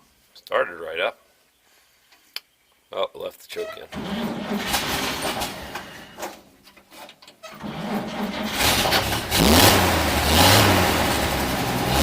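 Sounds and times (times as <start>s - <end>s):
truck engine starting and revving: 3.9s - 6.0s, 7.6s - 12.0s.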